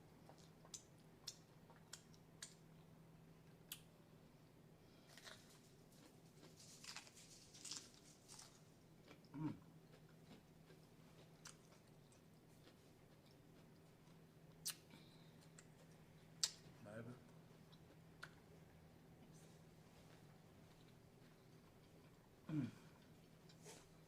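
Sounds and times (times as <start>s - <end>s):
low steady hum: 0.0s - 24.0s
person chewing: 0.1s - 2.9s, 5.0s - 16.8s, 17.6s - 18.6s, 20.0s - 24.0s
low throat sound: 9.3s - 9.6s, 22.5s - 22.9s.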